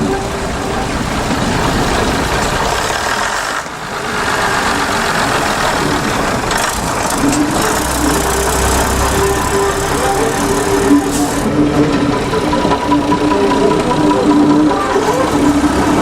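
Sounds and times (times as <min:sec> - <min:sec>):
diesel train engine running: 0:00.0 - 0:16.0.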